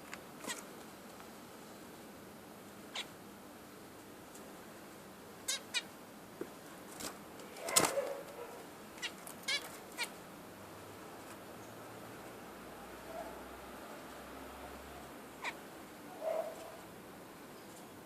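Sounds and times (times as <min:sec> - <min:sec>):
budgerigars chirping: 0:02.9 - 0:03.1, 0:05.5 - 0:05.9, 0:15.4 - 0:15.6.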